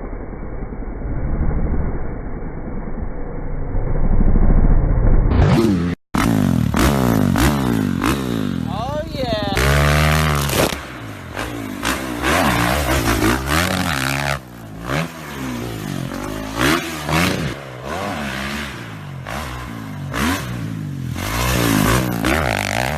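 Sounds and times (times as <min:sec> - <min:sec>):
motocross bike engines revving: 0:05.4 - 0:22.9.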